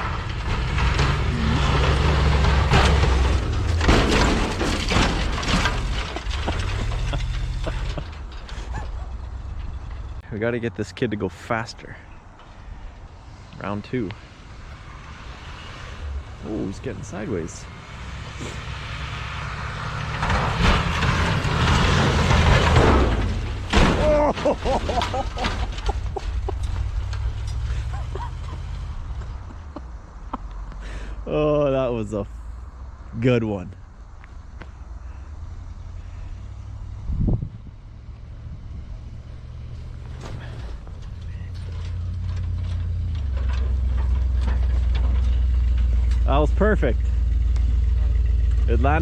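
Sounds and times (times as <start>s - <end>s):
tyre noise on dirt: 0.0s - 10.5s, 13.3s - 33.4s, 36.4s - 49.0s
pickup truck engine driving hard: 0.0s - 11.6s, 13.2s - 32.3s, 35.3s - 49.0s
person shouting: 24.0s - 24.4s.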